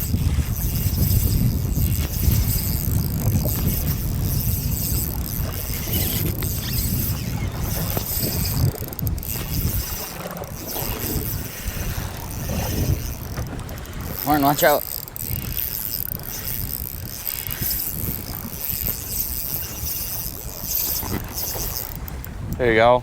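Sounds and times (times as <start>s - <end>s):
waves washing against boat hull: 0.0s - 23.0s
wind buffeting microphone: 0.0s - 23.0s.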